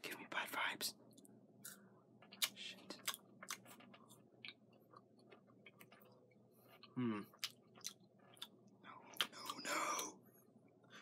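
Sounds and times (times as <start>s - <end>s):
person chewing crunchy wafer: 1.6s - 10.2s.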